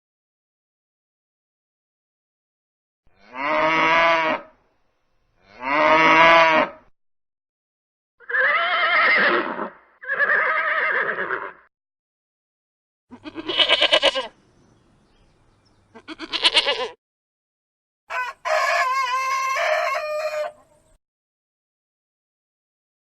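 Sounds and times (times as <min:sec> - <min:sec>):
farm animal long pitched calls: 0:05.4 - 0:06.9, 0:08.2 - 0:11.7, 0:13.1 - 0:14.4, 0:15.9 - 0:17.0.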